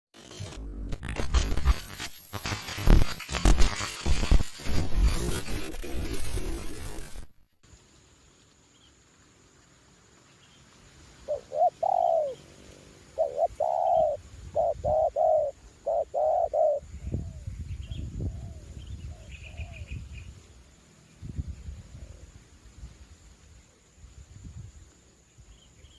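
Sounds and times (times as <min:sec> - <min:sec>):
dove cooing: 0:11.3 - 0:12.4, 0:13.1 - 0:17.5
wind rumbling on microphone: 0:13.5 - 0:15.5, 0:16.1 - 0:25.7.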